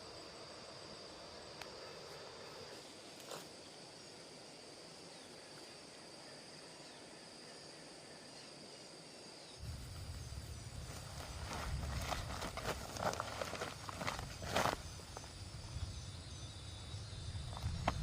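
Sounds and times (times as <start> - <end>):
high insect drone: 0.0 - 18.0
rustling: 9.6 - 15.4.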